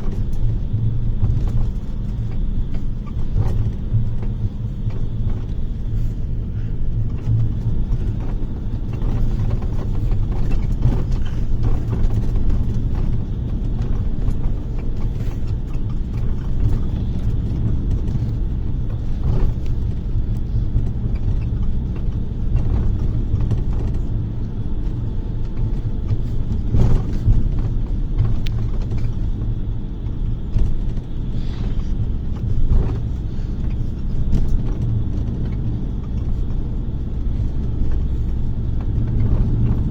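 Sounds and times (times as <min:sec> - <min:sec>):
bodywork knocks and rattles: 0:00.0 - 0:39.9
bus engine and road rumble: 0:00.0 - 0:39.9.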